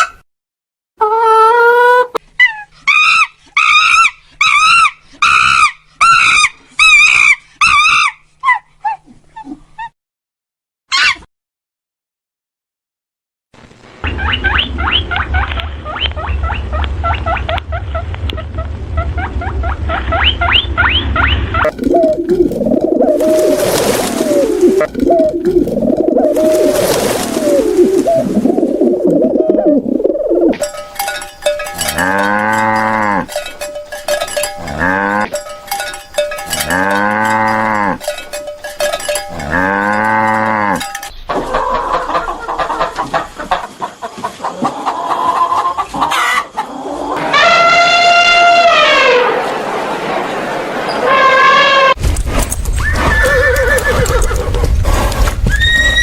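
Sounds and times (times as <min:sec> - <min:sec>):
animal giving high arching cries: 0:01.0 - 0:09.9
animal yelping: 0:01.0 - 0:09.9, 0:10.9 - 0:11.3, 0:14.1 - 0:28.3, 0:52.8 - 0:54.7
long steady animal call: 0:01.0 - 0:09.9, 0:29.1 - 0:43.7
pigeons cooing: 0:14.1 - 0:30.7.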